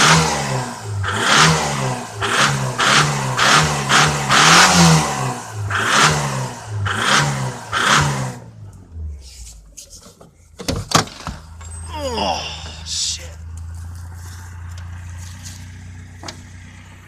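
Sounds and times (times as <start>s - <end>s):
pickup engine revving: 0.0s - 9.2s
engine idling: 8.4s - 17.0s.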